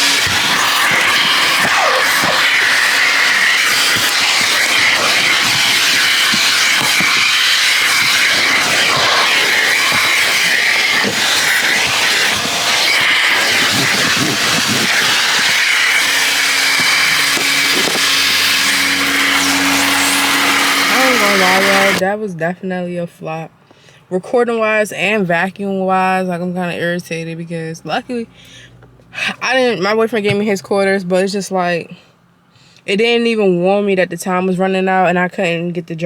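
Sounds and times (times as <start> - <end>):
vacuum hose sucking air: 0.0 - 22.0
vacuum running: 0.0 - 22.0.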